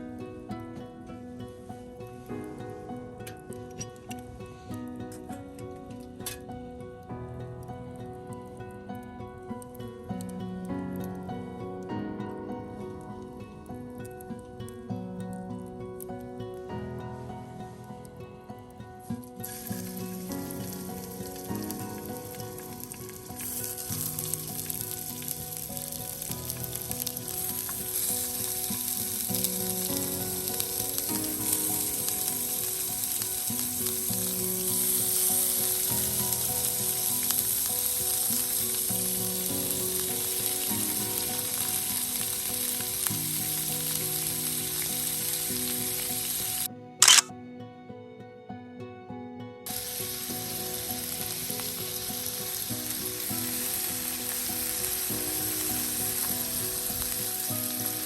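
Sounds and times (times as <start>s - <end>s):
food sizzling in oil: 19.3s - 47.2s, 49.7s - 58.0s
sharp click: 47.0s - 47.3s.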